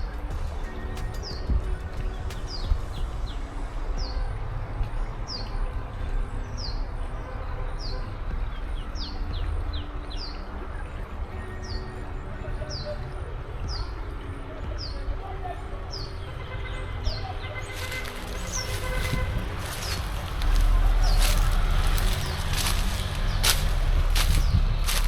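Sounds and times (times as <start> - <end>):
low rumble: 17.8 - 25.0.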